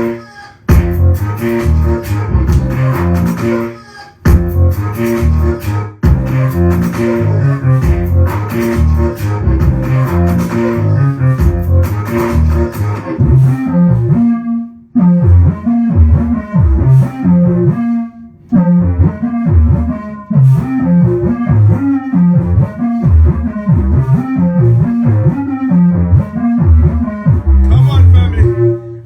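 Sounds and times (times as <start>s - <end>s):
grime music with heavy bass: 0.0s - 14.4s, 15.0s - 29.0s.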